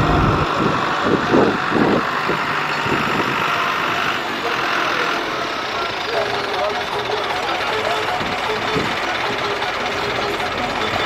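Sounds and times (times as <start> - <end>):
tractor engine idling: 0.0 - 0.4.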